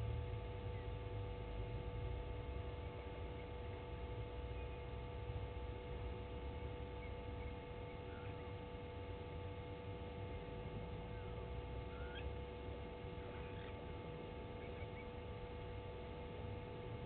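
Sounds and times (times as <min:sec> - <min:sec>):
steady hum and low rumble: 0:00.0 - 0:17.0
faint bird chirps: 0:02.7 - 0:03.7, 0:04.4 - 0:05.0, 0:06.5 - 0:08.9, 0:10.2 - 0:12.4, 0:13.0 - 0:15.4.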